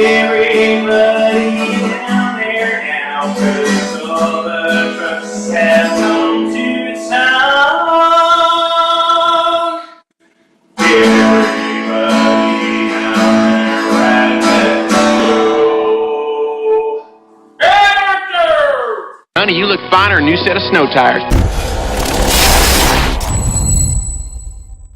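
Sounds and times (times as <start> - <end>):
strummed acoustic guitar: 0.0 - 6.7, 10.8 - 15.5
man singing: 0.0 - 10.0, 10.8 - 17.1.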